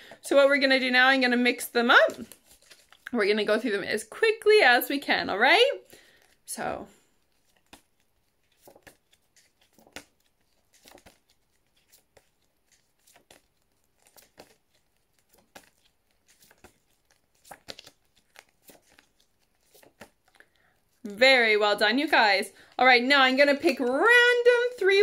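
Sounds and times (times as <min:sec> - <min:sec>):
cards rustling and tapping: 0:02.0 - 0:03.1, 0:05.8 - 0:06.5, 0:07.2 - 0:21.0.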